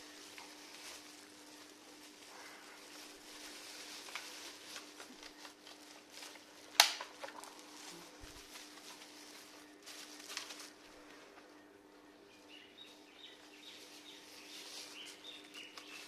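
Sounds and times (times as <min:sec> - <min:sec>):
rustling: 0:00.0 - 0:11.6, 0:12.3 - 0:16.0.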